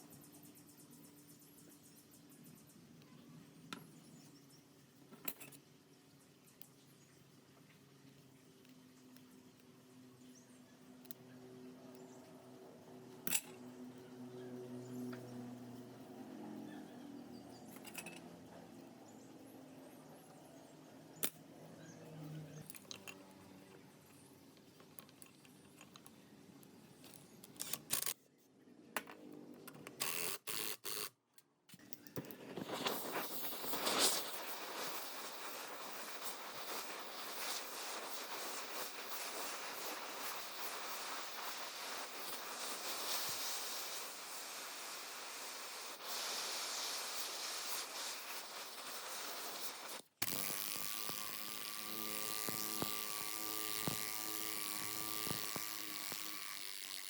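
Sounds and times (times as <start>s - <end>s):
small electric motor grinding: 30.0s - 31.1s, 32.8s - 57.0s.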